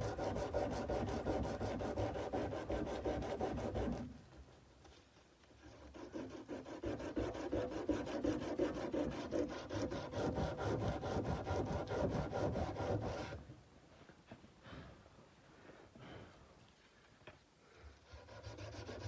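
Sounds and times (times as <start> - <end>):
sandpaper rubbing on steel blade: 5.7 - 13.4, 18.1 - 19.0.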